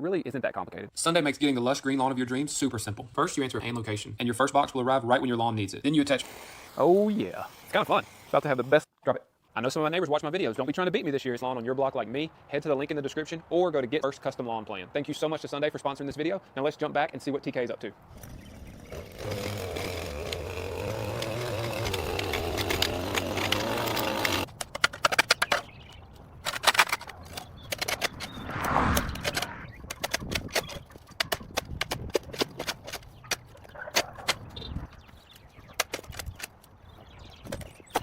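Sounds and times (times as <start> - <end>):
engine running: 18.2 - 24.5.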